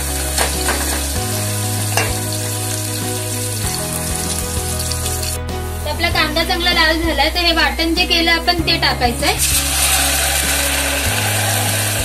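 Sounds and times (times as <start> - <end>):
onions sizzling in hot oil: 0.0 - 5.4, 9.4 - 12.0.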